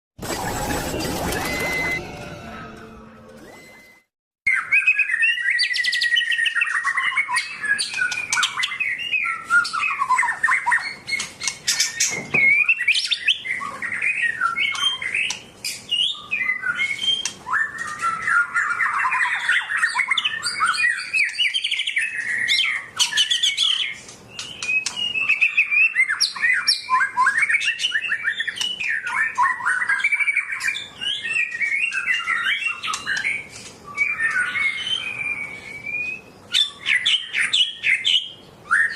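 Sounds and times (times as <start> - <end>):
songbird singing: 4.5 - 38.9.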